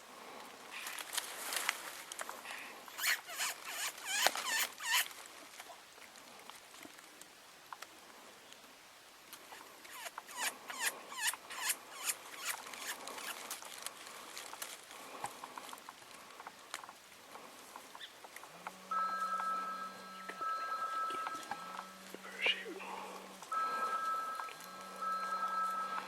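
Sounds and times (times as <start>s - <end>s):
high steady tone: 18.9s - 22.7s, 23.4s - 26.0s
squealing predator call chirps: 22.2s - 22.8s.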